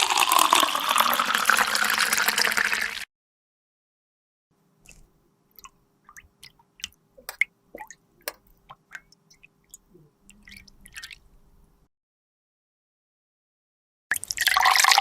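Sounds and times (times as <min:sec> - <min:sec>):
faint steady hum: 0:04.6 - 0:11.9
soft wet squishes: 0:04.8 - 0:11.8.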